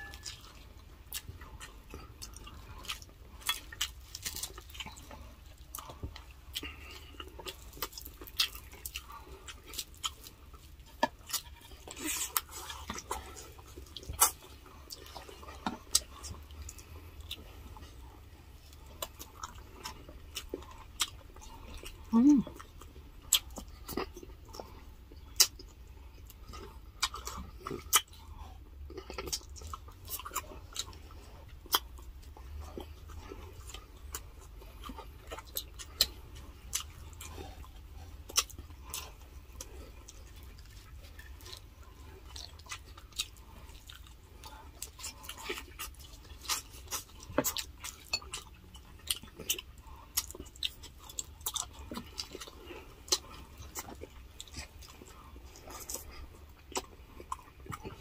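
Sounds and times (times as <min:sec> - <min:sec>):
low steady hum: 0:00.0 - 0:58.0
person chewing: 0:00.0 - 0:58.0.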